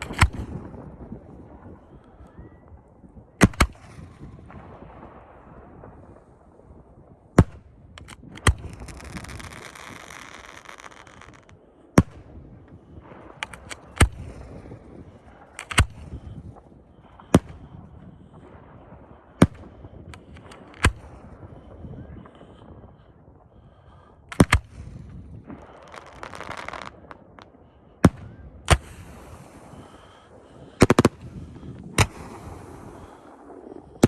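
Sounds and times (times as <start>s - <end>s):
firework booms: 0.0s - 34.0s
firework pops and crackles: 0.0s - 34.0s
firework hissing: 8.6s - 11.6s, 25.6s - 27.5s, 28.7s - 34.0s.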